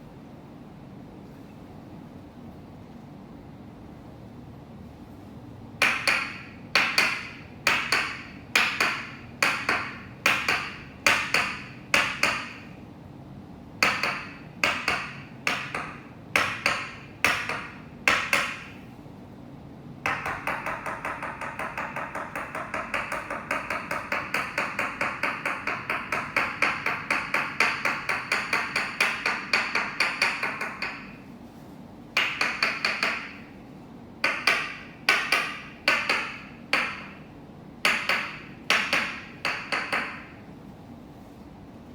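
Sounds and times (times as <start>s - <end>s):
wooden mallet striking wooden peg: 5.8s - 12.8s, 13.8s - 18.8s, 20.0s - 31.2s, 32.2s - 33.4s, 34.2s - 37.2s, 37.8s - 40.4s.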